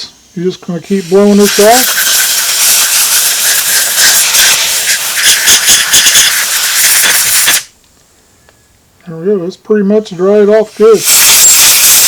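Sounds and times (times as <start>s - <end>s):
compressed air hissing: 0.0s - 7.8s, 10.6s - 12.0s.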